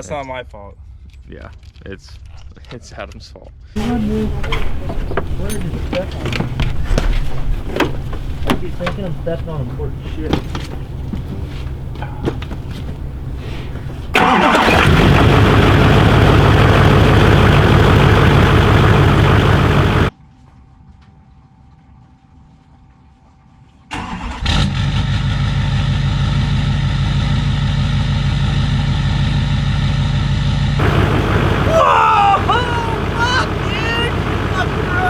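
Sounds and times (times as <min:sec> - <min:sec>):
diesel engine running loud: 0:03.8 - 0:20.1, 0:24.5 - 0:35.0.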